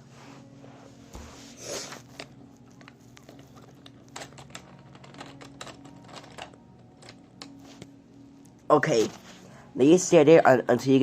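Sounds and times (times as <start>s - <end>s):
steady low hum: 0.0s - 11.0s
toy cars clicking and tapping: 3.3s - 7.6s.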